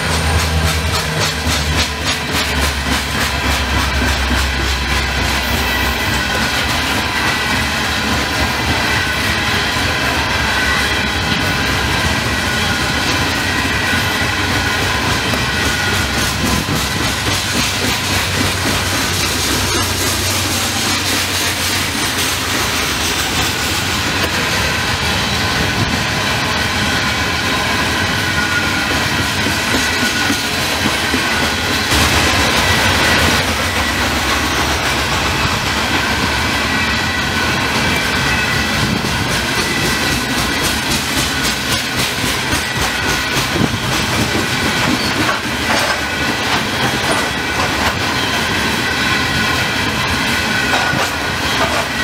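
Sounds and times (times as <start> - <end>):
wheels clicking over rail joints: 0.0 - 9.0, 37.8 - 48.4, 50.6 - 52.0
freight train rumbling past: 0.0 - 52.0.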